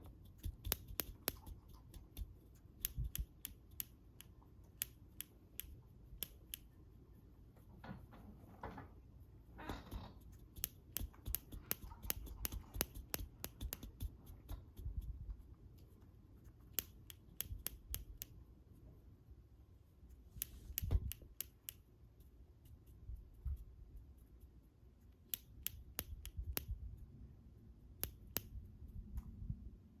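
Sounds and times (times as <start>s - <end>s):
soft noisy sound: 0.0s - 30.0s
cockatiel beak clicks: 0.1s - 6.7s, 10.4s - 15.1s, 16.7s - 18.4s, 20.4s - 21.8s, 25.3s - 26.8s.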